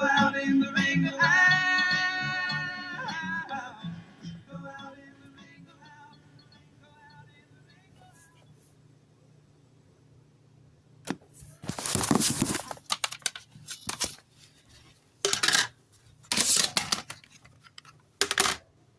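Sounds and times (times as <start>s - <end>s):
clattering and rustling: 11.6s - 18.6s.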